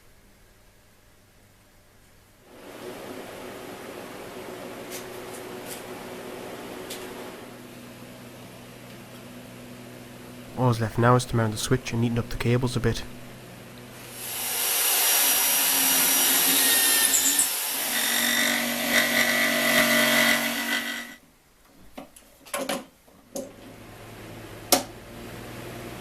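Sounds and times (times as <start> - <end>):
steady low hum: 9.4 - 14.1
power tool cutting wood: 14.0 - 21.2.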